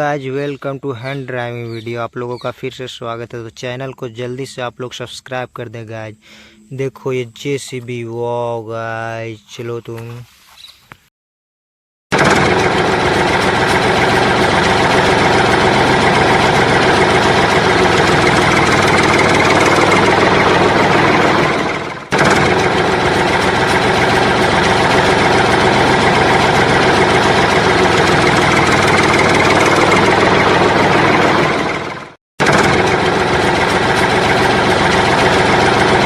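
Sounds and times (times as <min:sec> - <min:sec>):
engine running: 0:12.1 - 0:36.0.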